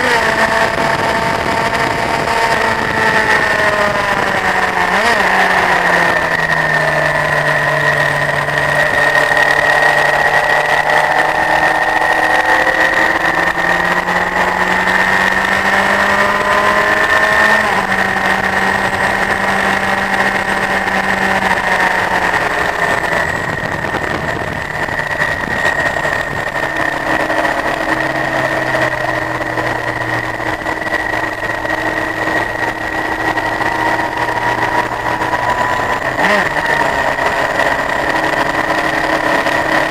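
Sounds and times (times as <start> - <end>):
motorcycle engine changing gear: 0.0 - 39.9
steady high whine: 0.0 - 39.9.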